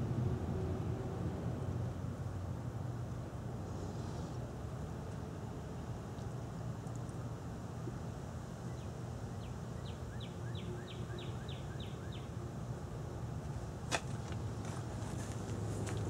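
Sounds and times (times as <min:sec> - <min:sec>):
bird chirping: 0:08.7 - 0:12.3.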